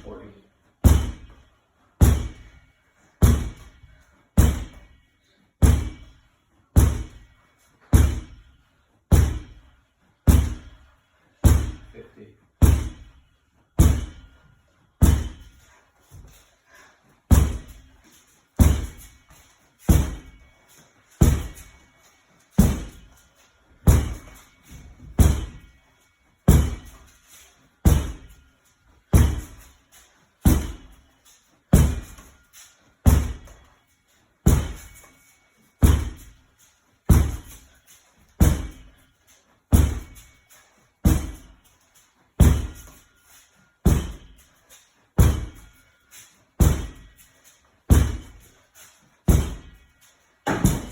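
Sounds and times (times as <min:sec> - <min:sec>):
medicine ball thudding against wall: 0:00.8 - 0:01.4, 0:02.0 - 0:02.6, 0:03.2 - 0:03.7, 0:04.4 - 0:04.8, 0:05.6 - 0:07.3, 0:07.9 - 0:08.4, 0:09.1 - 0:09.6, 0:10.2 - 0:10.8, 0:11.4 - 0:11.9, 0:12.6 - 0:13.1, 0:13.8 - 0:14.2, 0:15.0 - 0:15.6, 0:17.3 - 0:17.9, 0:18.6 - 0:19.1, 0:19.9 - 0:20.3, 0:21.2 - 0:21.7, 0:22.6 - 0:23.1, 0:23.8 - 0:24.4, 0:25.0 - 0:25.6, 0:26.5 - 0:27.1, 0:27.8 - 0:28.3, 0:29.1 - 0:29.6, 0:30.4 - 0:30.9, 0:31.7 - 0:32.3, 0:33.0 - 0:33.6, 0:34.4 - 0:34.9, 0:35.8 - 0:36.4, 0:37.1 - 0:37.7, 0:38.4 - 0:38.8, 0:39.7 - 0:40.2, 0:41.0 - 0:41.6, 0:42.4 - 0:43.0, 0:43.8 - 0:44.3, 0:45.2 - 0:45.6, 0:46.6 - 0:47.1, 0:47.9 - 0:48.4, 0:49.3 - 0:49.8, 0:50.4 - 0:50.9.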